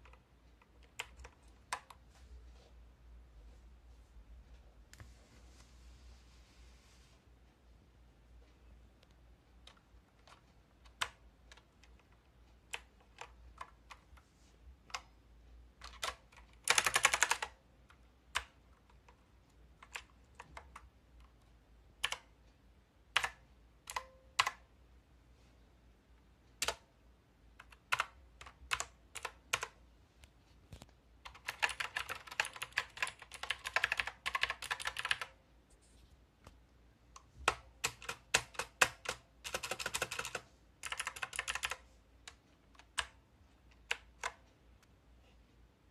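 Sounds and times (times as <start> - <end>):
clicky mechanical keyboard typing: 0.0 - 2.0, 9.6 - 14.2, 15.8 - 21.4, 22.0 - 22.3, 23.1 - 24.6, 27.6 - 29.8, 30.8 - 35.4, 37.2 - 44.5.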